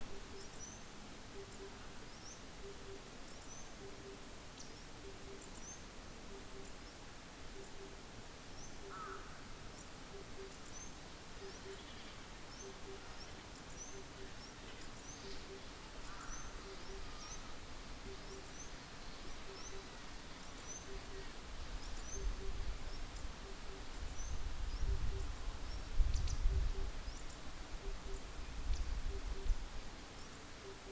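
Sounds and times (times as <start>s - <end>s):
lower bird calls: 0.0s - 8.0s, 8.6s - 29.7s, 30.3s - 30.9s
outdoor hiss: 4.2s - 30.9s
small birds chirping: 8.6s - 30.9s.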